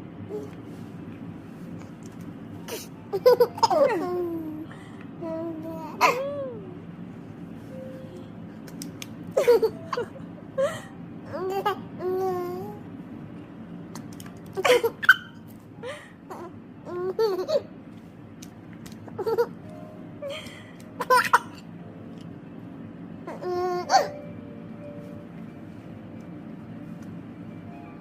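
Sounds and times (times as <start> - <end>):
steady low hum: 0.0 - 28.0
baby laughing and squealing: 14.6 - 15.4, 23.3 - 24.2.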